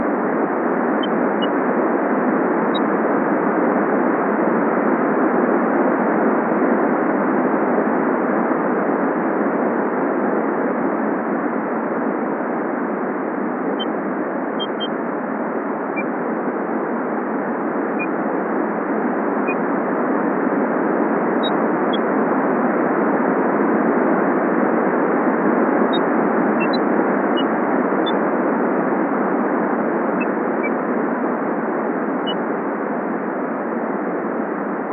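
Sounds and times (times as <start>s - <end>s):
high bird chirps: 14.6s - 14.9s.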